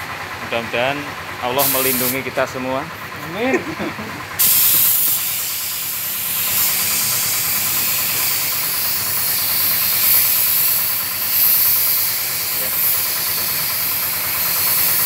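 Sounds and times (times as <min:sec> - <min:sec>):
low pulsing engine: 0:00.0 - 0:15.0
paint spray gun hissing: 0:01.6 - 0:02.3, 0:04.4 - 0:15.0.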